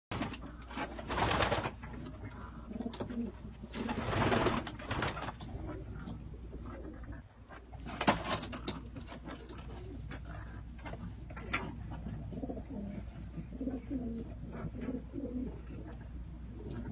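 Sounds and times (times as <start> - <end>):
wing rustling bursts: 0.1 - 2.2, 3.6 - 5.5
pigeons cooing: 0.1 - 16.9.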